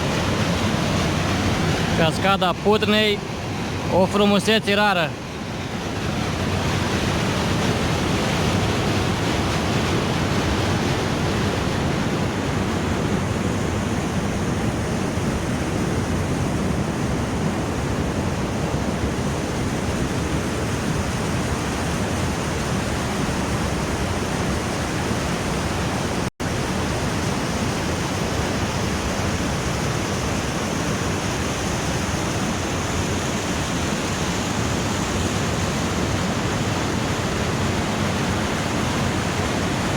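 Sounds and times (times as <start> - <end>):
waterfall rushing: 0.0 - 13.6.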